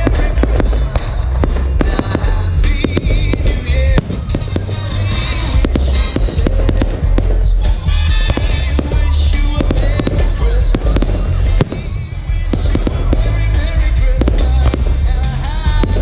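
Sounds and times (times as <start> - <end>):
deep fireworks booms: 0.0 - 16.0
fireworks sharp bangs and crackles: 0.0 - 16.0
music playing: 0.0 - 16.0.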